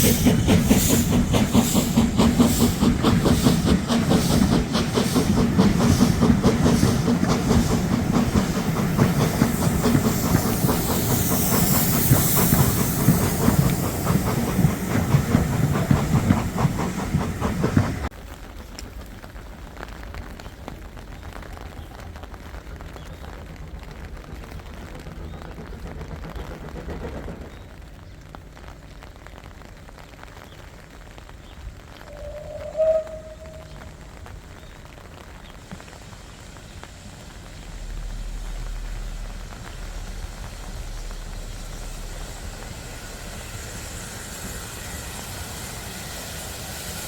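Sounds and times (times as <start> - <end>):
steam hissing: 0.0 - 18.1, 32.1 - 34.7, 35.3 - 47.0
steam train rhythmic clatter: 0.0 - 47.0
low rumble: 32.1 - 34.4, 36.6 - 44.2.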